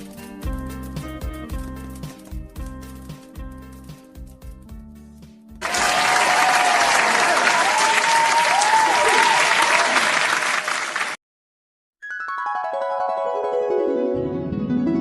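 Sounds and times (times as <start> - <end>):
audience applause: 5.6 - 11.2
bell-like keyboard notes: 12.0 - 15.0.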